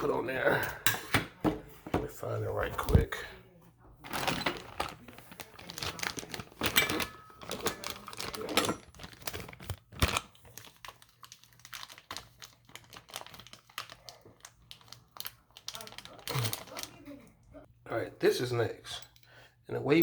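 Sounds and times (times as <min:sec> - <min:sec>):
faucet parts clicking and clattering: 0:04.0 - 0:10.2
plastic packaging rustling: 0:04.0 - 0:17.3.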